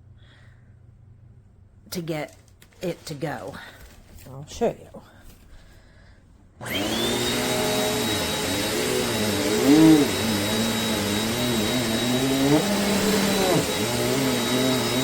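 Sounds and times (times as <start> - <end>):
vacuum cleaner motor whine: 6.6 - 15.0.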